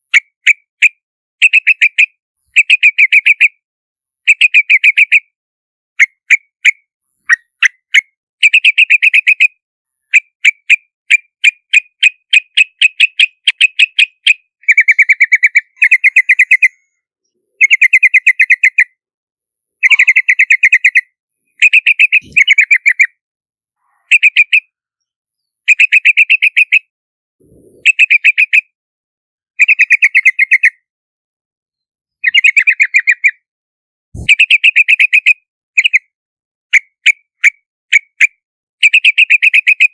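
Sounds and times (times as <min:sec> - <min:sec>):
bird chattering calls: 0:11.8 - 0:16.9, 0:17.6 - 0:18.9, 0:19.8 - 0:23.2, 0:25.7 - 0:28.7, 0:34.2 - 0:36.0
sharp bird notes: 0:19.8 - 0:21.0.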